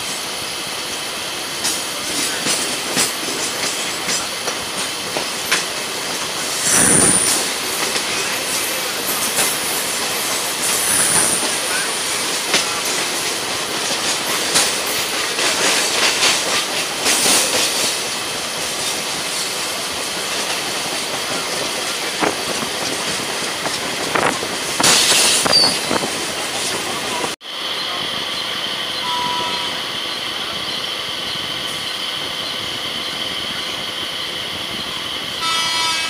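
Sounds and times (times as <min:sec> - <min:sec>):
passing train clatter: 0:00.0 - 0:36.0
train wheels rumbling: 0:00.0 - 0:36.0
wheels clacking over rail joints: 0:01.5 - 0:27.3
high wheel squeal: 0:06.5 - 0:13.0, 0:25.4 - 0:26.0, 0:27.1 - 0:36.0.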